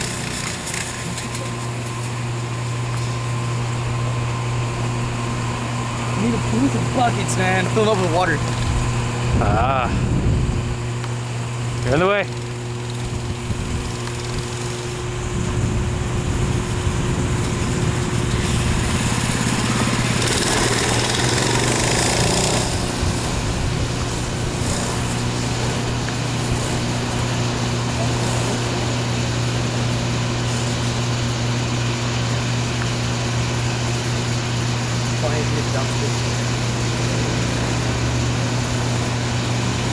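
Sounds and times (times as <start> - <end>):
minibike engine running: 0.0 - 2.3, 11.8 - 15.6, 18.2 - 31.0.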